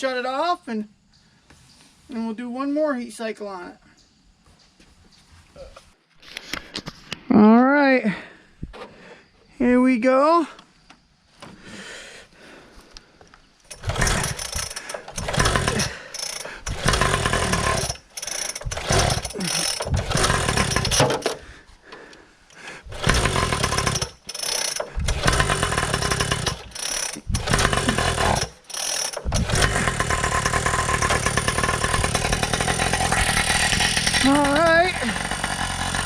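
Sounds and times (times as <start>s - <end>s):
two-stroke engine starting and cutting out: 13.7s - 21.3s, 22.9s - 36.0s.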